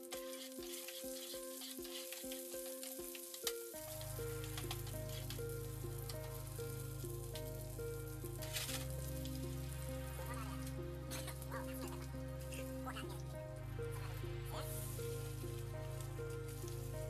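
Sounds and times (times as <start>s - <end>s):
vegetables sizzling in oil: 0.0s - 11.7s, 14.5s - 17.0s
background music with steady beat: 0.0s - 17.0s
deep bass: 3.8s - 17.0s.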